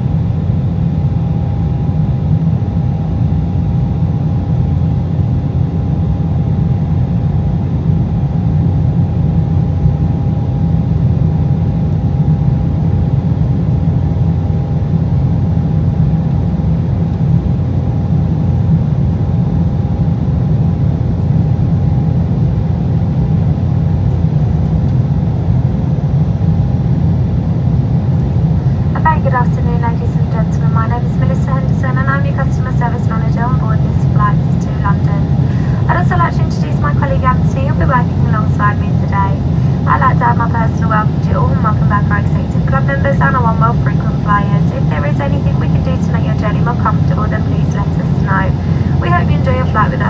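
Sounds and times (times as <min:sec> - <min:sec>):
jet cabin rumble: 0:23.6 - 0:50.0.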